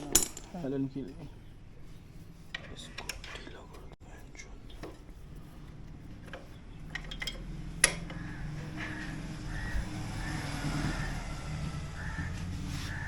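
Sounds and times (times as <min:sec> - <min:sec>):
metal hand tools clinking: 0:00.0 - 0:00.6.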